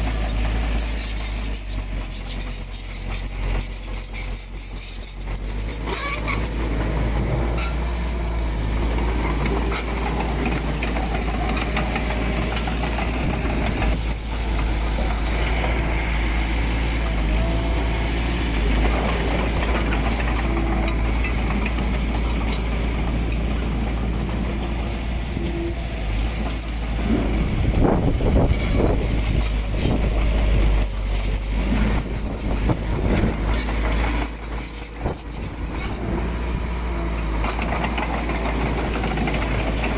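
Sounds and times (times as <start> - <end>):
heavy diesel machinery rumbling: 0.0 - 39.9
machinery squeals: 0.7 - 6.8, 13.2 - 21.4, 26.4 - 36.1.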